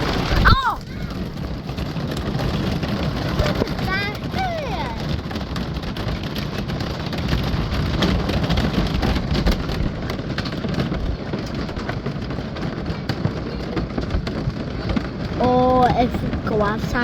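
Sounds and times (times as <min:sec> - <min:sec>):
heavy rain rushing: 0:00.0 - 0:02.3, 0:15.4 - 0:17.0
hailstones clattering on surfaces: 0:00.0 - 0:17.0.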